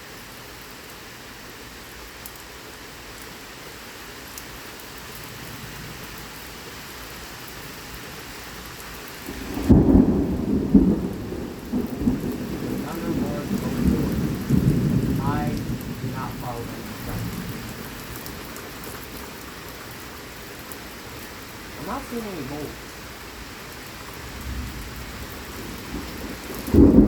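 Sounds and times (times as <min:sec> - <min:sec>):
heavy rain hissing: 0:00.0 - 0:27.0
thunder clap rumbling: 0:09.3 - 0:19.2, 0:24.1 - 0:27.0.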